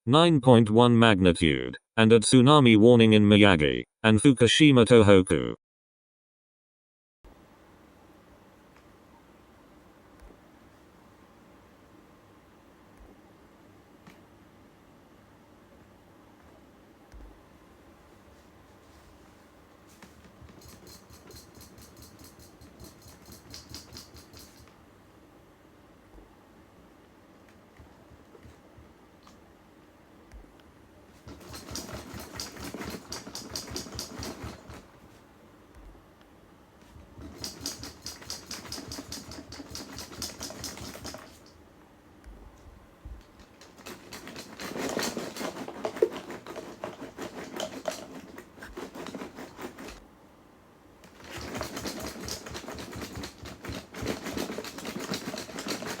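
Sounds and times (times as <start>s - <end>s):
rapid mechanical rattling: 20.0s - 24.7s, 31.2s - 35.0s, 37.0s - 41.6s, 43.2s - 50.0s, 51.0s - 56.0s.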